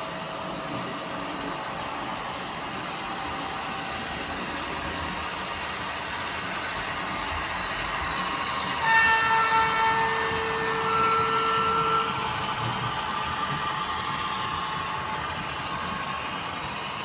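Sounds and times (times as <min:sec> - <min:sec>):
train rumbling: 0:00.0 - 0:17.0
train horn: 0:08.8 - 0:12.8.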